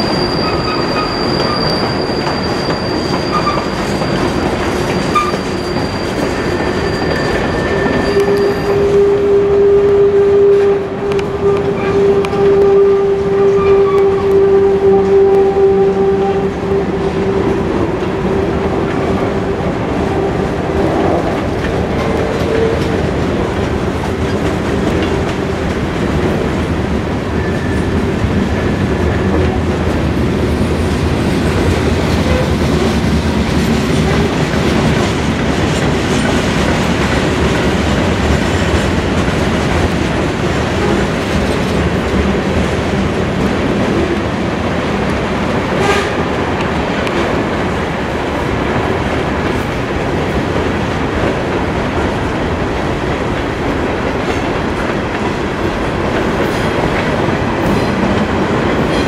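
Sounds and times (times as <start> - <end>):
freight train wheels clacking: 0.0 - 10.0, 10.6 - 59.0.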